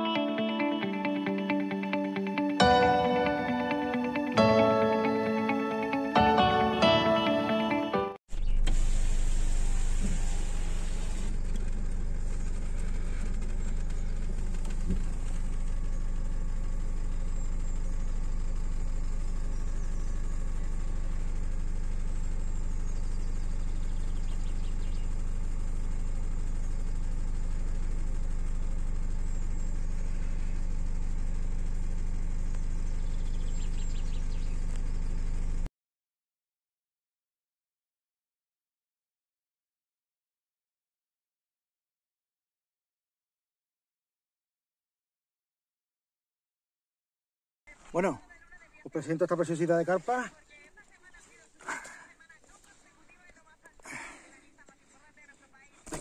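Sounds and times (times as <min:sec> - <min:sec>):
car engine idling: 0:08.4 - 0:35.7, 0:47.7 - 0:55.8.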